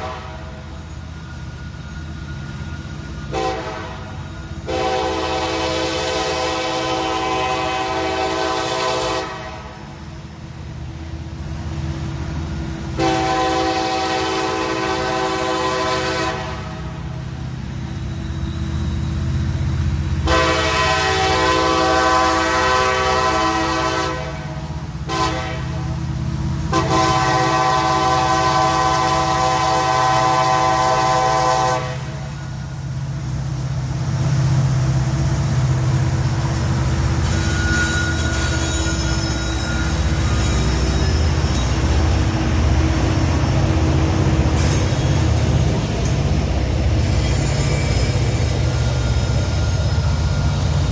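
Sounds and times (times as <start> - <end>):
train air horn blasts: 0.0 - 0.7, 3.3 - 9.8, 13.0 - 17.0, 20.2 - 25.9, 26.6 - 32.5
train passing rumble: 0.0 - 50.9
wheel squeal: 16.9 - 20.2, 32.3 - 50.9.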